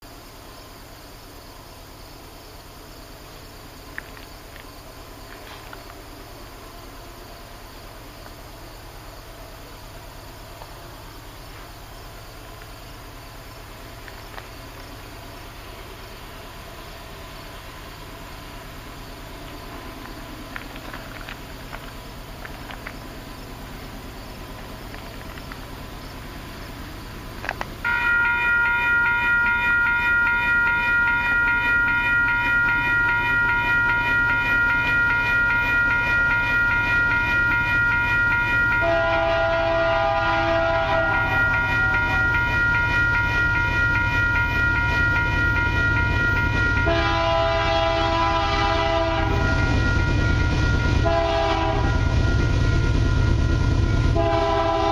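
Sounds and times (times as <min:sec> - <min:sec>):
faint insect chirping: 0:00.0 - 0:54.9
locomotive air horn: 0:36.2 - 0:43.8, 0:44.8 - 0:52.9, 0:54.1 - 0:54.9.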